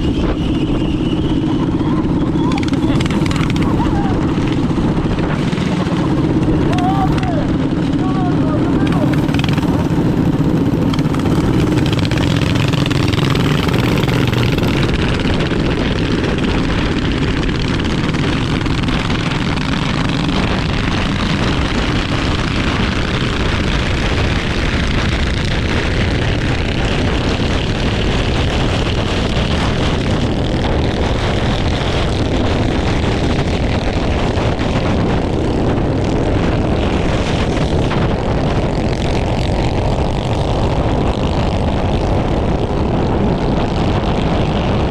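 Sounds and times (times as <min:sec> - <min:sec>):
minibike engine running: 0:00.0 - 0:44.9.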